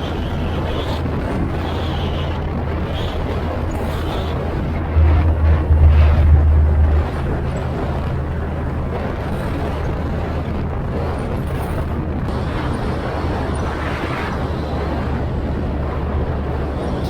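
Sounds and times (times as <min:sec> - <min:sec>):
speedboat engine drone: 0:00.2 - 0:13.6.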